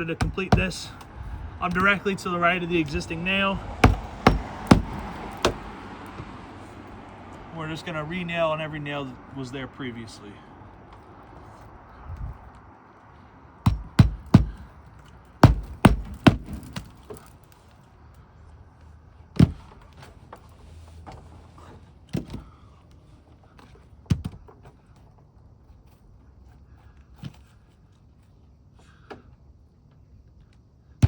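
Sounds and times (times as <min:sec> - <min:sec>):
hammer striking roofing nails: 0:00.0 - 0:02.2, 0:03.8 - 0:05.8, 0:13.6 - 0:14.7, 0:15.4 - 0:17.3.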